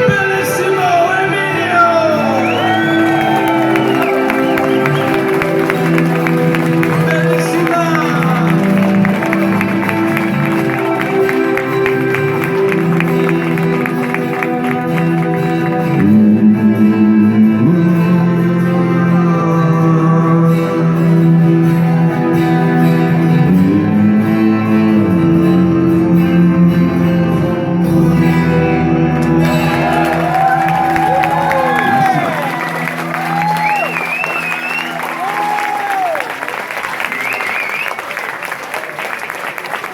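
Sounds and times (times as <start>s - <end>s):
live band music: 0.0s - 19.8s
guitar: 0.0s - 39.0s.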